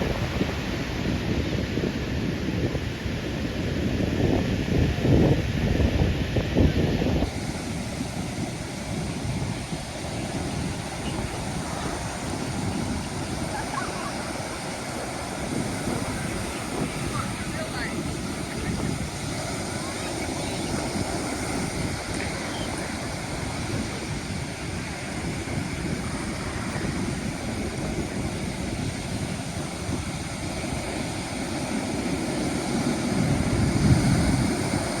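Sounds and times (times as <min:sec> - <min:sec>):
ocean surf washing in: 0:00.0 - 0:35.0
wind buffeting microphone: 0:00.0 - 0:35.0.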